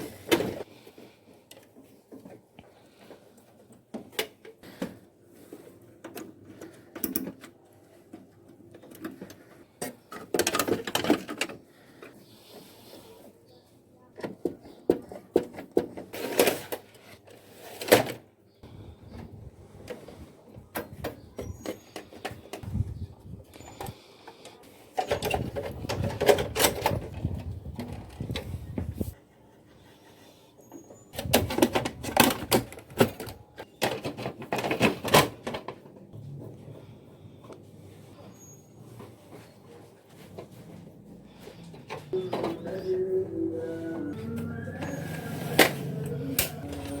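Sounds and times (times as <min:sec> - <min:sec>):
plastic parts clicking and knocking: 0:05.6 - 0:12.2, 0:14.2 - 0:17.1, 0:23.8 - 0:28.6, 0:31.2 - 0:36.1
plastic sliding scrapes: 0:44.8 - 0:47.0.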